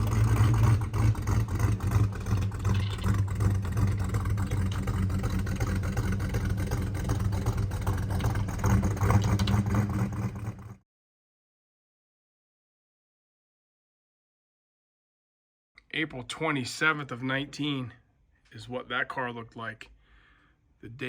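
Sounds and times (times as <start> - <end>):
car engine running: 0.0 - 10.8.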